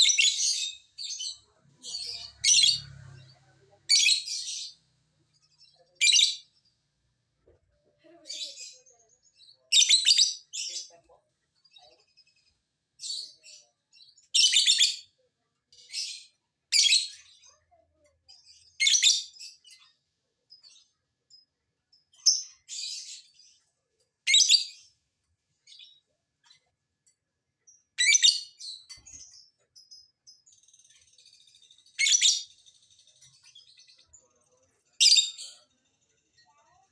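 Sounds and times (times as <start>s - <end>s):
lovebirds chattering shrilly: 0.0s - 4.8s, 30.6s - 34.0s.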